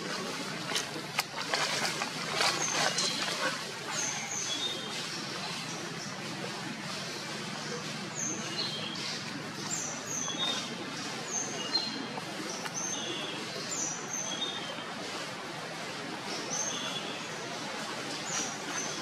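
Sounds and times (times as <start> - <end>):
birds chirping: 0.0 - 14.9.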